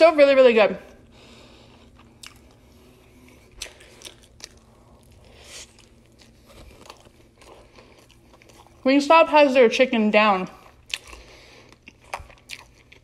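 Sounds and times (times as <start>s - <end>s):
crisp chewing crunches: 1.6s - 8.9s, 10.5s - 13.0s
soft mouth sounds: 1.7s - 8.8s.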